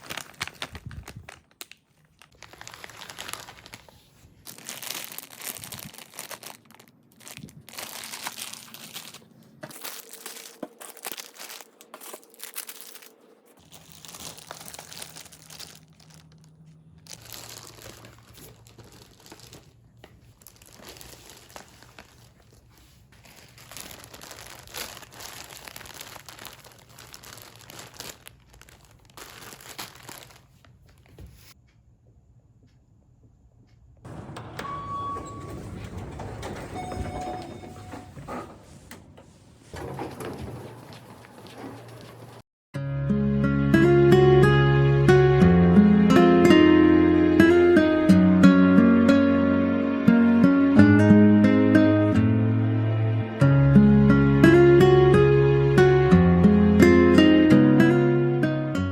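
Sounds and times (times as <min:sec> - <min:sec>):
plastic packaging crinkling: 0:00.0 - 0:31.6, 0:39.9 - 0:42.4.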